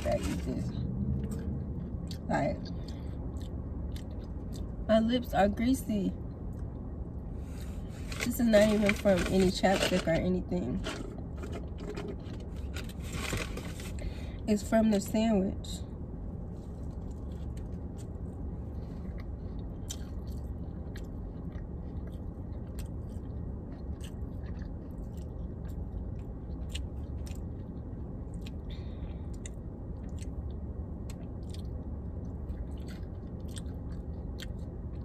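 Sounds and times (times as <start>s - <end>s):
steady low hum: 0.0s - 35.0s
person biting and chewing: 19.0s - 28.6s, 31.0s - 31.8s, 32.5s - 35.0s.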